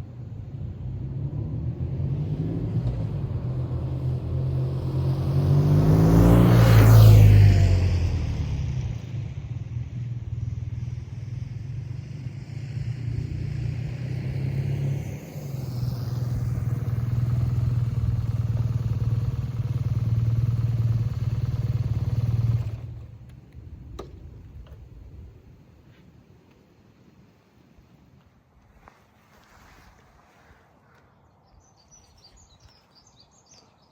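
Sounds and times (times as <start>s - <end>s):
motorcycle engine running: 15.8s - 23.3s.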